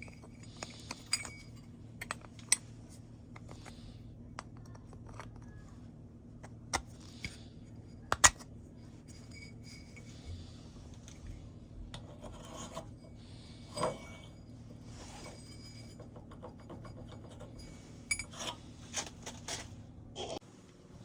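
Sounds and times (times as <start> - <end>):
filing scrape on metal: 12.1 - 16.0.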